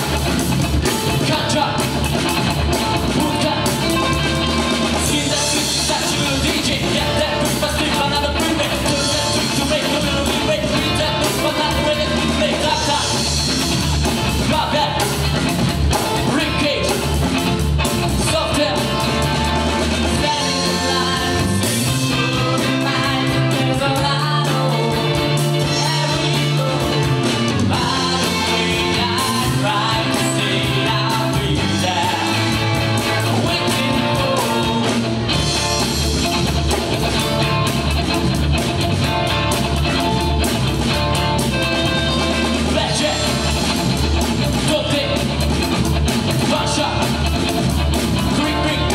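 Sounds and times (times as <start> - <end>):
guitar: 0.0 - 48.9
rock band playing: 0.0 - 48.9
person singing: 3.0 - 13.4, 18.2 - 35.2, 48.2 - 48.9.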